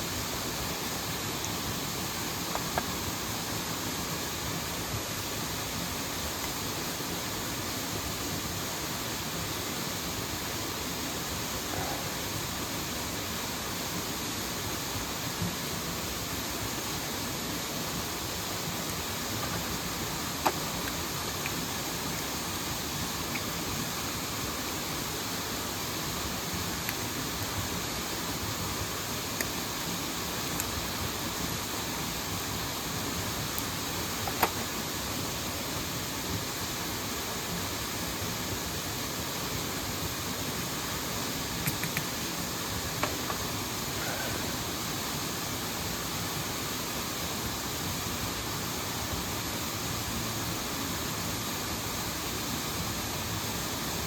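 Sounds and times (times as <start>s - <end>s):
mountain stream and waterfall rushing: 0.0s - 54.0s
sharp clicks: 41.6s - 42.1s.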